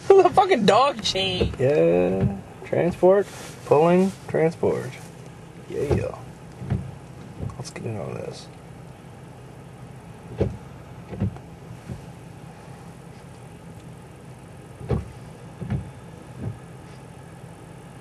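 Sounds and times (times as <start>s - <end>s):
short dull thumps: 0.0s - 3.6s, 5.0s - 7.9s, 10.2s - 12.2s, 14.8s - 17.1s
vehicle engine humming: 0.0s - 18.0s.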